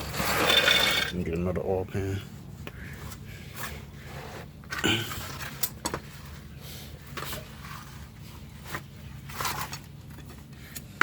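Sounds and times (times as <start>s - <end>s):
hand tools scraping and clicking: 0.0s - 1.2s.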